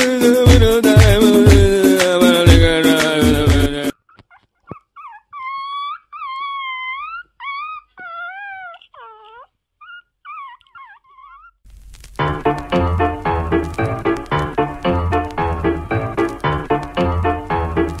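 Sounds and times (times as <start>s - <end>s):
puppy howling: 3.9s - 11.6s
puppy yelps: 3.9s - 11.6s.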